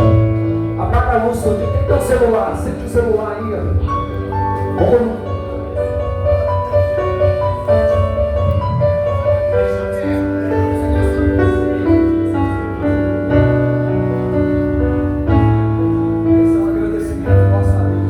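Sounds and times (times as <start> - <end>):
keyboard playing sustained chords: 0.0 - 18.0
steady bass: 7.4 - 18.0.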